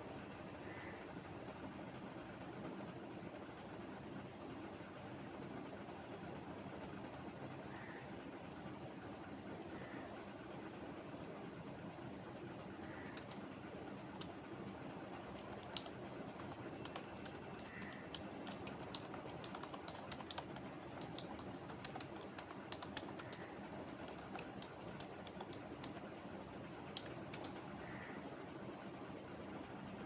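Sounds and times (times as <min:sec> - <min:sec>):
low background noise: 0:00.0 - 0:30.0
typing on computer keyboard: 0:13.2 - 0:13.5, 0:15.1 - 0:27.7.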